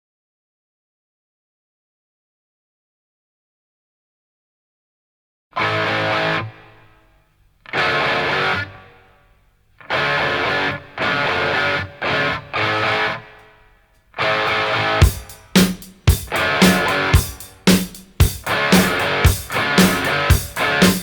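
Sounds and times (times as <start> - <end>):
distorted electric guitar chords: 5.6 - 6.8, 7.7 - 9.0, 9.8 - 13.4, 14.2 - 21.0.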